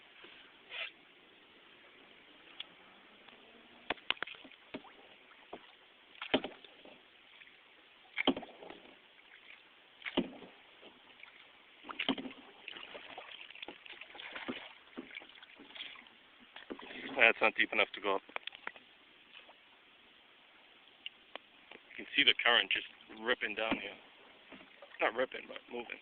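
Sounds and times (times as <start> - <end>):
moving water wash: 1.8 - 19.6
paddle splashing in water: 3.8 - 17.4, 22.9 - 25.6.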